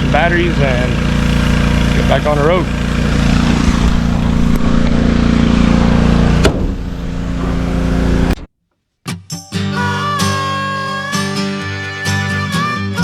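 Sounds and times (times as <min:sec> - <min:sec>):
vehicle engine idling: 0:00.0 - 0:08.4.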